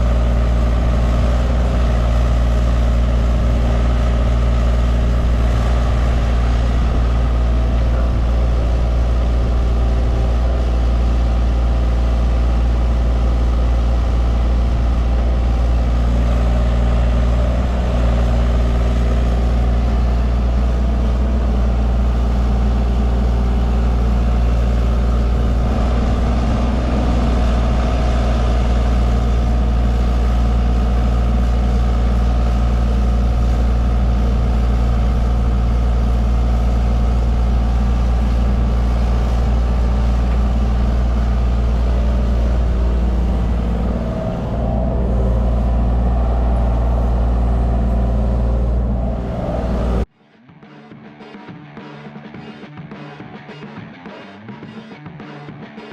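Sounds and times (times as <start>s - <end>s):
excavator diesel engine running: 0.0s - 50.1s.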